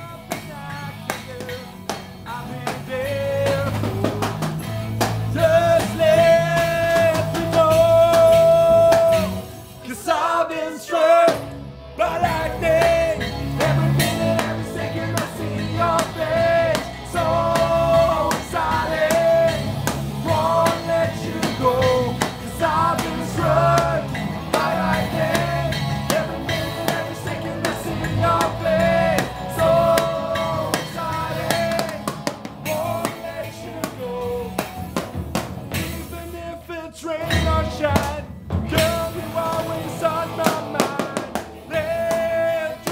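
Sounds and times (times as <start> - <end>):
rock band playing: 0.0 - 10.1, 11.1 - 42.9
drum kit: 0.0 - 10.3, 11.1 - 42.9
person singing: 0.0 - 34.9, 35.8 - 42.9
electric guitar: 10.9 - 36.6, 37.2 - 42.9.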